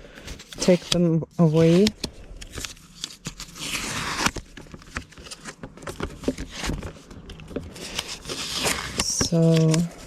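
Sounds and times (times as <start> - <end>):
paper cards clicking and rustling: 0.2 - 10.0
rasping paper: 3.0 - 4.4, 7.7 - 10.0.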